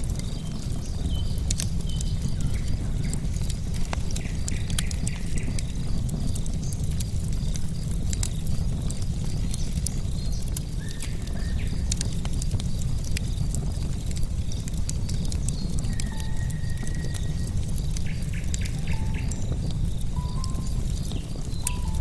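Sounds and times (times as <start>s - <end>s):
wood fire crackling and popping: 0.0s - 22.0s
high chirps of birds or insects: 15.1s - 22.0s.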